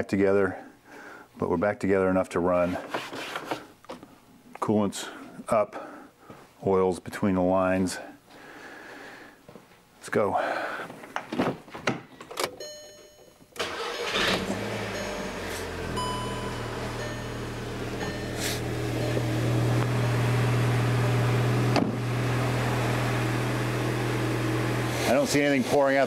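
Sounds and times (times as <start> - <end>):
car engine cranking and idling: 13.6 - 25.8.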